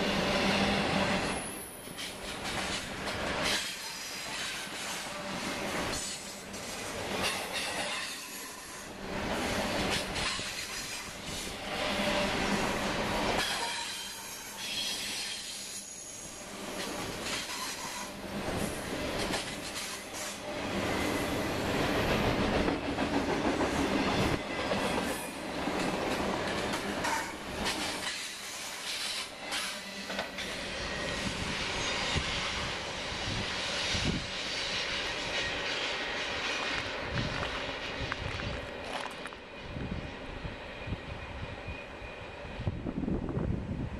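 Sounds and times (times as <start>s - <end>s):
freight train wheels rumbling: 0.0s - 43.9s.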